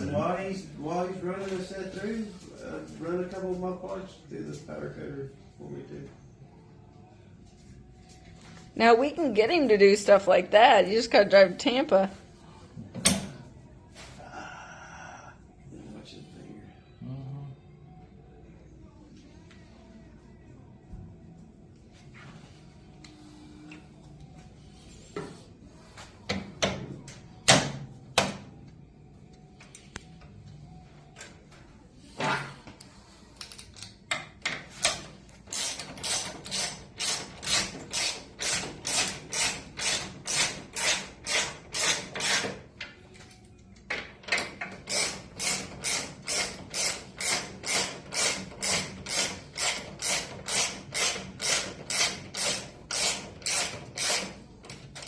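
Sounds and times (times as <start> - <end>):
ratchet wrench clicking: 34.8 - 42.6, 44.4 - 55.0.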